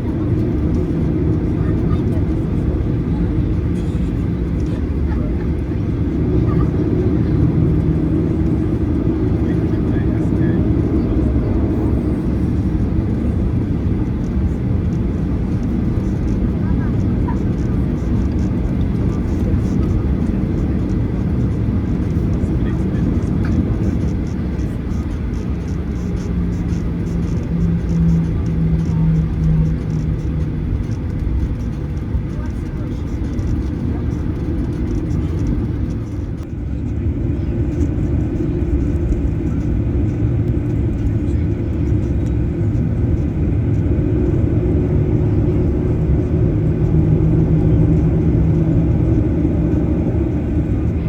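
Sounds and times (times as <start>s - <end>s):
jet engines rumbling at taxi: 0.0s - 51.0s.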